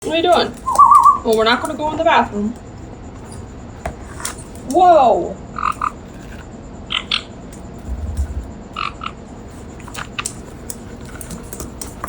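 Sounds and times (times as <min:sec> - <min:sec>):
parrot chirping: 0:00.6 - 0:01.3
low thump: 0:07.8 - 0:08.6.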